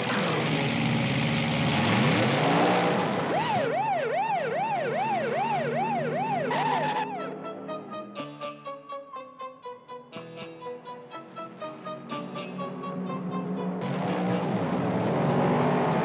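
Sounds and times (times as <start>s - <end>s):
cartoon siren wail: 3.3s - 8.2s.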